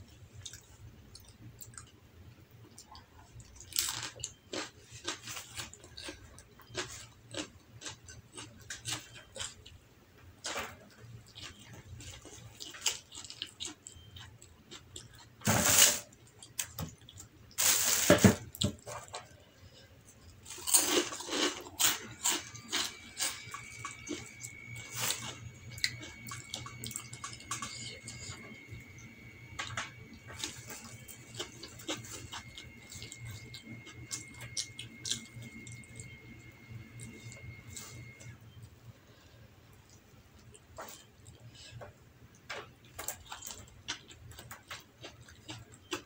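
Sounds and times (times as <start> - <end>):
person chewing and smacking: 0.4 - 2.0, 2.6 - 9.8, 10.8 - 15.4, 20.1 - 36.2, 39.8 - 46.0.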